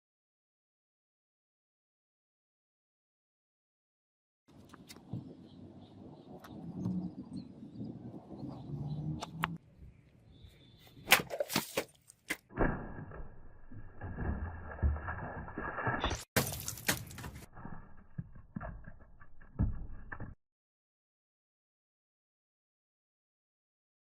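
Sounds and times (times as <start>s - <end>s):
sharp cracks and knocks: 11.0s - 20.4s.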